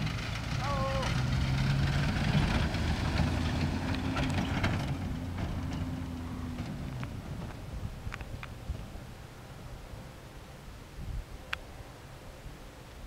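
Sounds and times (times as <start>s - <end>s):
car engine driving by: 0.0s - 10.4s.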